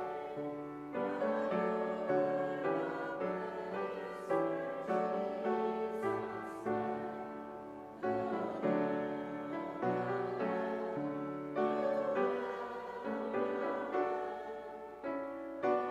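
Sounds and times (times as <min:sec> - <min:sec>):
piano playing slow chords: 0:00.0 - 0:02.9.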